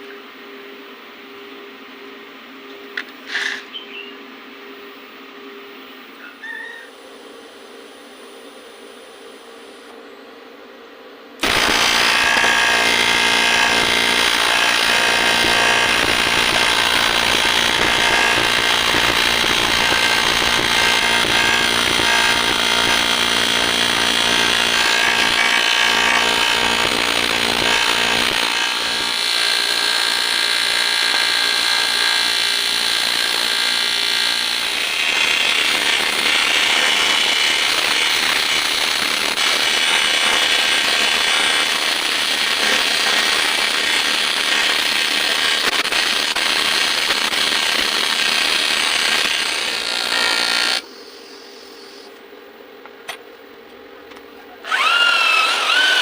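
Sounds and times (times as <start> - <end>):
buzzing workshop tool: 11.4 - 52.2, 54.6 - 56.0.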